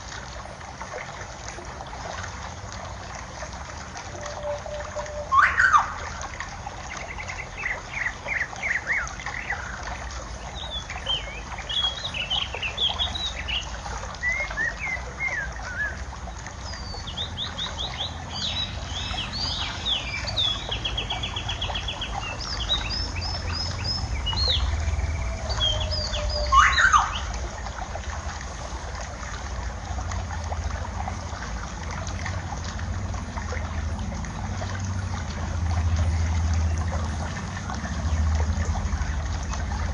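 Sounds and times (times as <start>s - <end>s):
trickling water: 0.0s - 39.9s
small birds chirping: 6.9s - 27.4s
low wind rumble: 17.2s - 39.9s
sharp loud bird calls: 22.6s - 27.4s.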